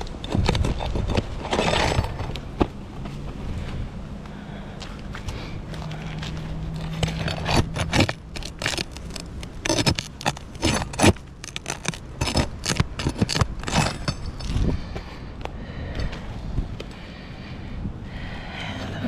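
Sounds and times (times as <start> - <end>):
metal tool scraping shingles: 0.0 - 2.4, 6.7 - 14.8.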